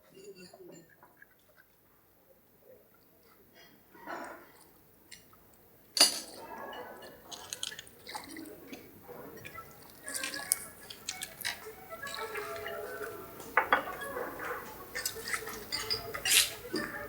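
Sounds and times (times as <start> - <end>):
dishes and cutlery clinking: 0.0 - 1.2, 6.0 - 17.0
liquid sounds: 7.0 - 17.0.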